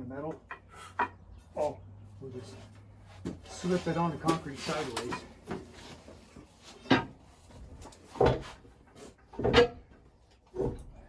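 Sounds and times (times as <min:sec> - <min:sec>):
heavy machine scraping on concrete: 0:03.5 - 0:06.0.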